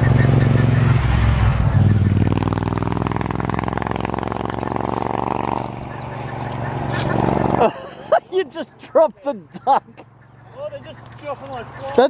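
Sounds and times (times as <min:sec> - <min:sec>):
motorcycle engine running: 0:00.0 - 0:07.8
ducklings peeping: 0:00.0 - 0:12.0.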